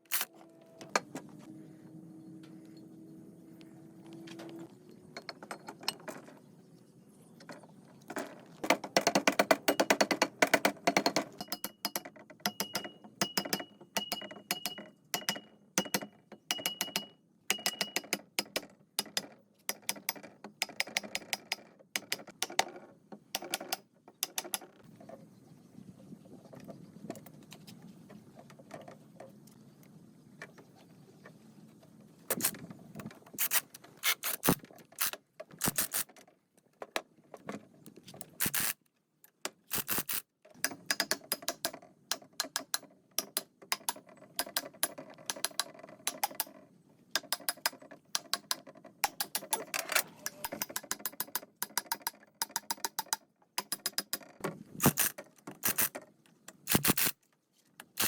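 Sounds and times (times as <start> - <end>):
metal parts and tools clinking: 10.8 - 22.8, 33.4 - 36.2, 38.2 - 38.8, 39.7 - 46.6, 47.2 - 56.0, 56.7 - 57.2.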